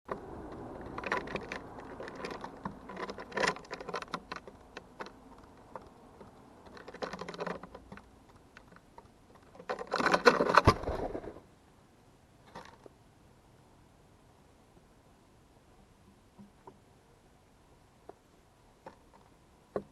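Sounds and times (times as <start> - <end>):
bird pecking at a feeder: 0.1 - 11.1.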